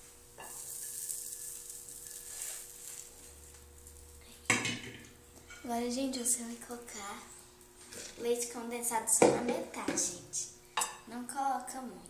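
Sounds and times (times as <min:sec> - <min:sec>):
crepe sizzling in a frying pan: 0:00.0 - 0:11.9.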